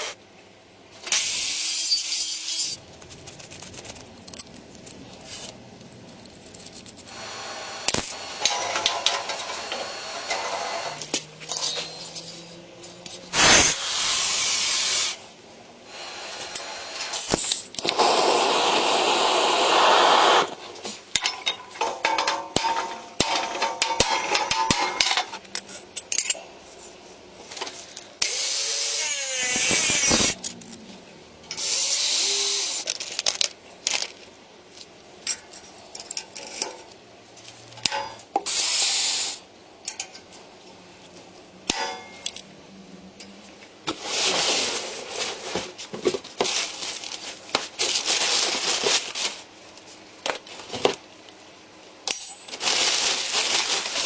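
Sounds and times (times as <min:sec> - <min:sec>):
tools and metal parts clattering: 0:08.4 - 0:13.2, 0:20.8 - 0:28.1, 0:32.8 - 0:38.4, 0:41.7 - 0:42.5, 0:52.0 - 0:54.0
power tool bursts: 0:13.3 - 0:15.2, 0:16.3 - 0:20.6, 0:28.2 - 0:30.4.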